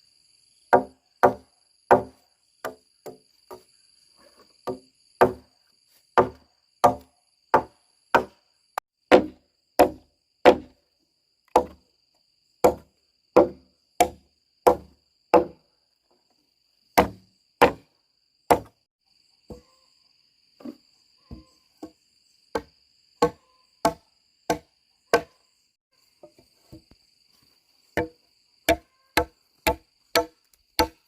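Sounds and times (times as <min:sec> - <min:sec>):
high insect drone: 0:00.0 - 0:31.0.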